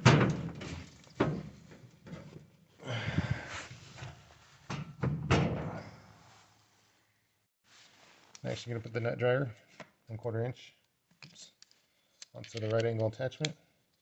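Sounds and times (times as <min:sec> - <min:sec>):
knocks and thuds of machine parts: 0:00.0 - 0:02.4, 0:04.7 - 0:06.0.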